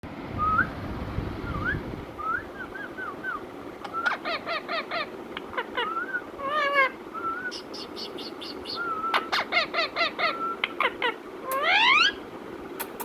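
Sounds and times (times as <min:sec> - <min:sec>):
parrot chirping: 0:03.8 - 0:12.2
parrot squawking: 0:03.8 - 0:12.2
parrot clicks: 0:12.8 - 0:13.0.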